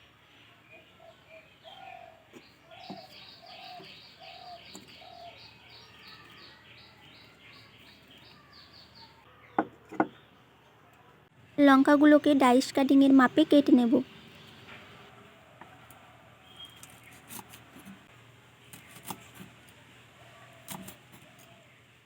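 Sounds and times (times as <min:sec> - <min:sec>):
bird chirping rapidly: 0:02.4 - 0:09.3.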